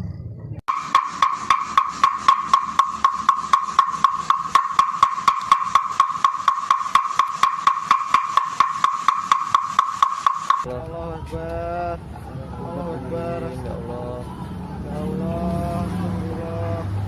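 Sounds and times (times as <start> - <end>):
rapid wood-block ticking: 0.7 - 10.7
steady high tone: 0.7 - 10.8.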